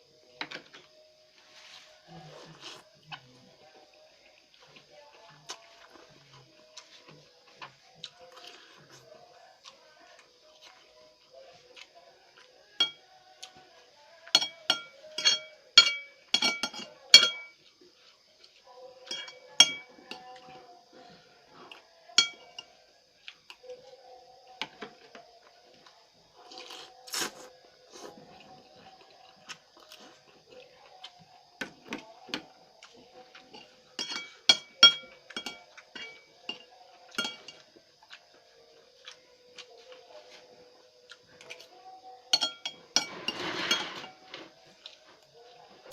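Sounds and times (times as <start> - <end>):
metal cutlery clinking on a dish: 12.8 - 13.0, 14.3 - 17.6, 19.0 - 20.3, 22.2 - 22.6, 33.4 - 37.6, 42.3 - 44.5.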